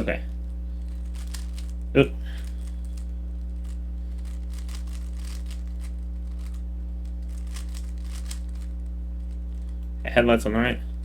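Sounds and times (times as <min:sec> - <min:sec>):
steady electrical hum: 0:00.0 - 0:11.0
plastic cube layers clicking: 0:01.1 - 0:01.7, 0:03.6 - 0:08.7.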